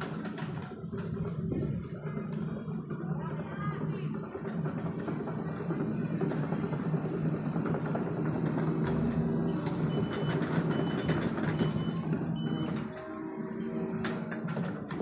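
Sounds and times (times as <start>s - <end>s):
excavator diesel engine running: 0.0s - 15.0s
machine knocks: 8.3s - 11.9s
warning alarm beeping: 8.9s - 12.8s.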